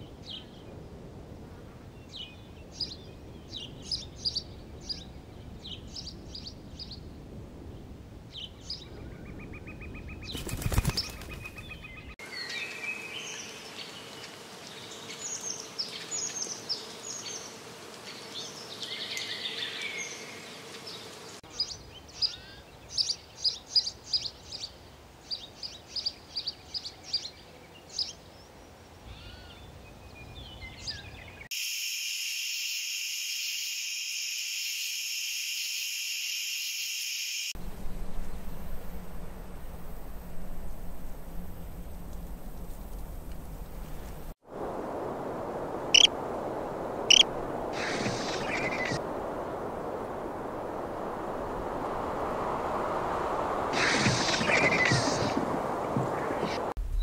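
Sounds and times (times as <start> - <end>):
faint outdoor background: 0.0 - 57.0
small birds chirping: 8.3 - 31.5, 45.9 - 46.1, 47.1 - 49.0, 53.7 - 57.0
steady high hiss: 31.5 - 57.0.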